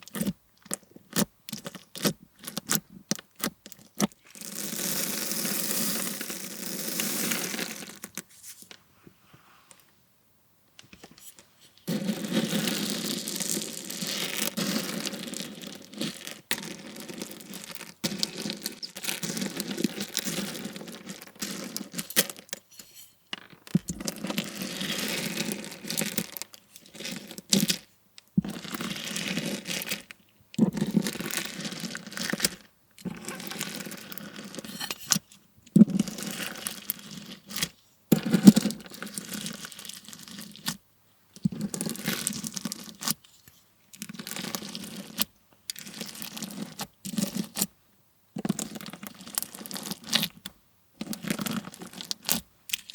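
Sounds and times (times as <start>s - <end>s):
slime crackling and crunching: 11.8s - 22.5s, 35.8s - 40.8s.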